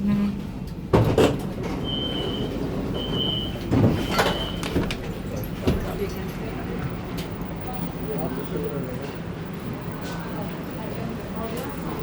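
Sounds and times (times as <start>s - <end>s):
tram low rumble: 0.0s - 12.0s
tram doors sliding open: 0.2s - 7.5s.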